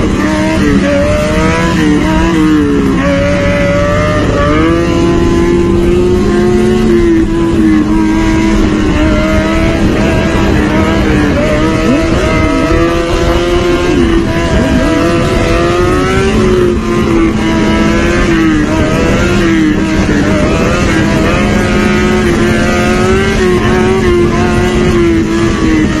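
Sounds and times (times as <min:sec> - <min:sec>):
motorcycle engine revving: 0:00.0 - 0:26.0
motorcycle engine steady: 0:00.0 - 0:26.0.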